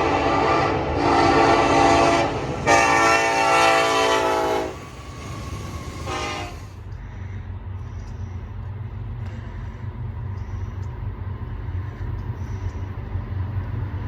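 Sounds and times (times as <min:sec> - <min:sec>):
train horn blasts: 0:00.0 - 0:05.0, 0:06.0 - 0:06.8
train rumbling: 0:00.0 - 0:14.0.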